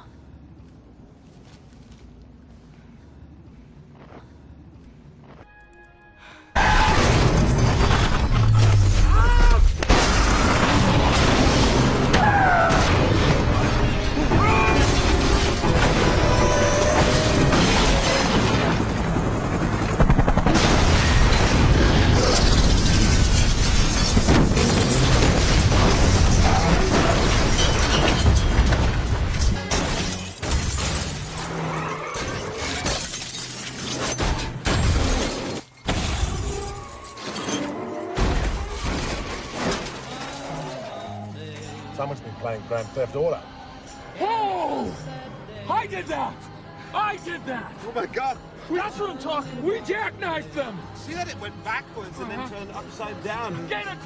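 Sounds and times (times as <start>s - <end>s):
loud dense film music: 5.7s - 30.6s, 37.2s - 54.0s
glass shattering: 6.6s - 18.3s, 20.8s - 40.6s
booming crash effects: 6.6s - 18.8s.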